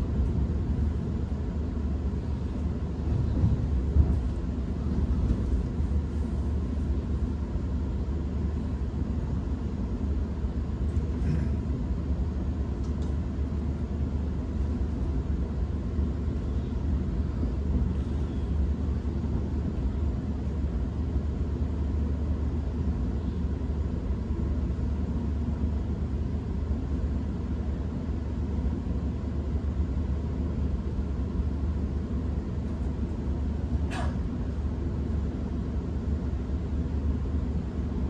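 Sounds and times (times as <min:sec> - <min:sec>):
train wheels rumbling on track: 0:00.0 - 0:21.8, 0:30.4 - 0:38.0.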